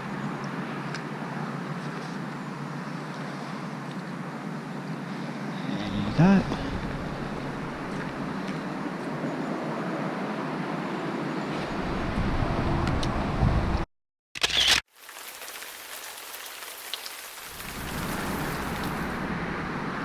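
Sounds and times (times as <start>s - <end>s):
rain and wind hiss: 14.9s - 19.6s.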